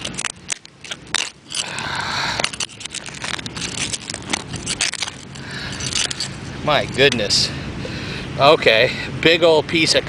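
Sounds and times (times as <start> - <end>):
stones clicking: 0.0 - 6.4
digging tool scraping gravelly dirt: 0.0 - 7.3.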